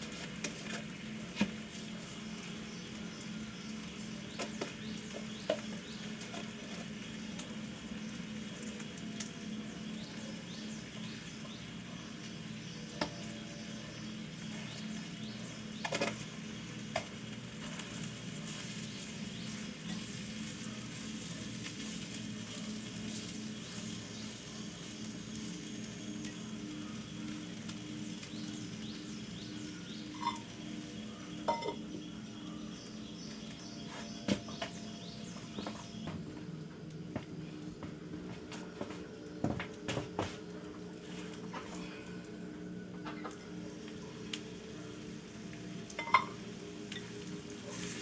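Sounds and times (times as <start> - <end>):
food sizzling in a pan: 0.0 - 36.1, 41.1 - 48.0
utensil clinking on pan: 46.0 - 46.4.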